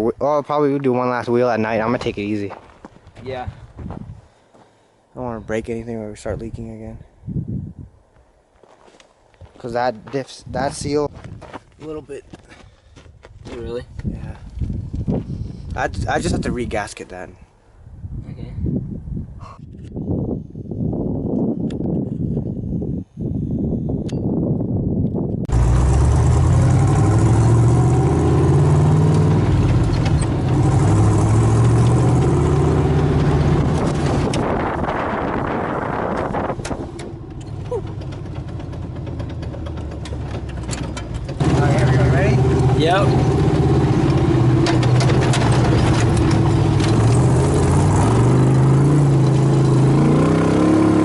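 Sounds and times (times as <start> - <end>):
engine revving: 25.5 - 51.0
sharp clicks and knocks: 29.1 - 30.6, 36.2 - 41.6, 44.0 - 47.3.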